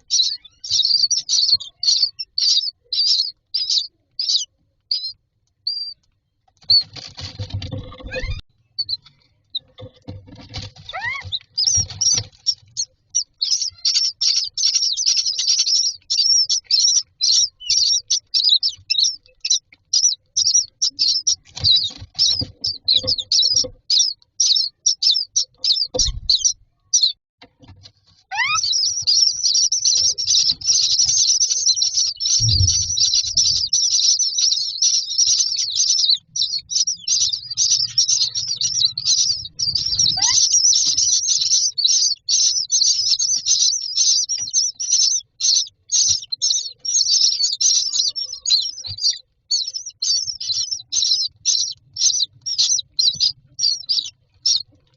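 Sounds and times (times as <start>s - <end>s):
chicks begging calls: 0.0s - 27.2s, 28.1s - 54.9s
rustling: 6.0s - 16.2s
low thumps: 32.4s - 33.6s.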